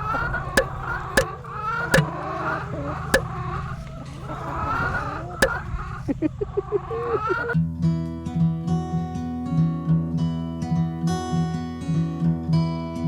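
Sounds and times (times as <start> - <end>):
sharp clicks: 0.0 - 2.4, 3.2 - 5.8
chickens clucking: 0.0 - 7.6.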